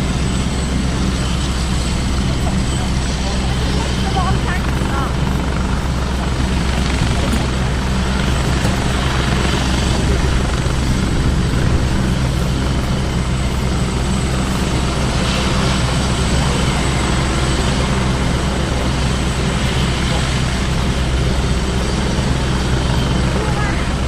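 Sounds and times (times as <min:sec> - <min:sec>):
helicopter rotor and engine drone: 0:00.0 - 0:24.0.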